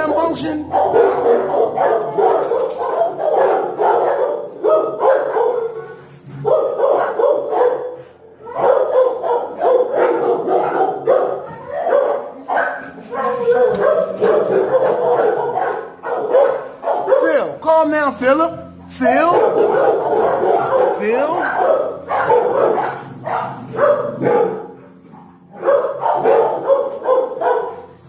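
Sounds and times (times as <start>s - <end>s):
dogs barking: 0.0s - 17.6s, 18.4s - 28.0s.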